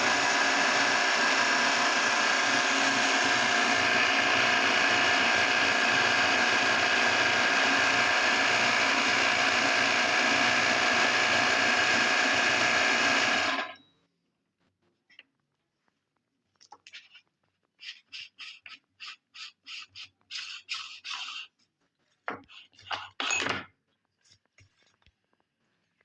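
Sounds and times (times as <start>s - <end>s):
meat grinder grinding: 0.0s - 13.8s.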